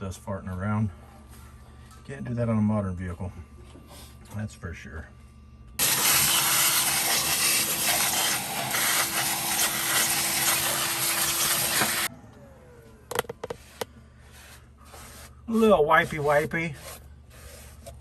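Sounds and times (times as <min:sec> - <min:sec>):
motor-driven machine rushing hum: 0:05.8 - 0:18.0.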